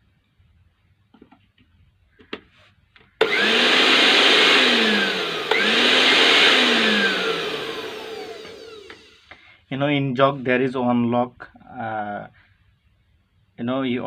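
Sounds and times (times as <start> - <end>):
blender motor running: 3.2 - 9.4.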